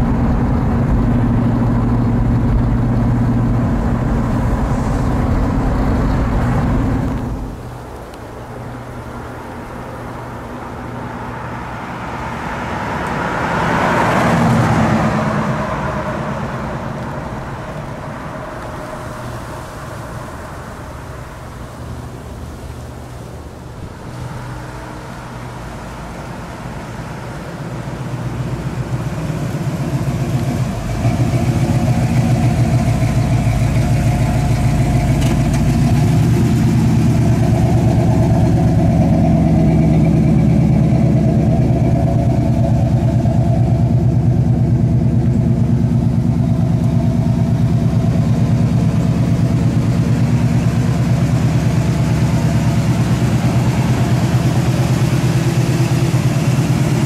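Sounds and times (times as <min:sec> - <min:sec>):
car engine running: 0:00.0 - 0:08.1, 0:14.2 - 0:57.0.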